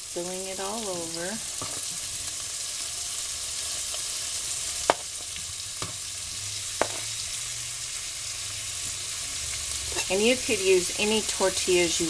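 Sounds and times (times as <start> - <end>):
pork sizzling in a pan: 0.0 - 12.0
utensil knocking against pan: 6.8 - 7.1.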